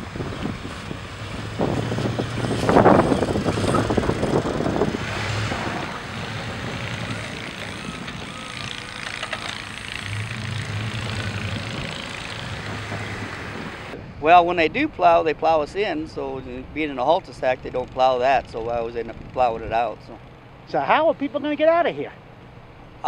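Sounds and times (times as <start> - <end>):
vehicle engine running: 0.0 - 14.0
wind noise on microphone: 0.0 - 20.2.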